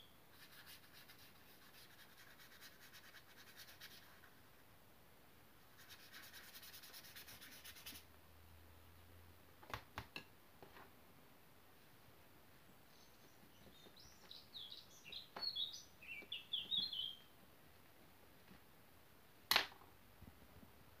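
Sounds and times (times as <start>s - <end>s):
small bird twittering: 12.9s - 17.3s.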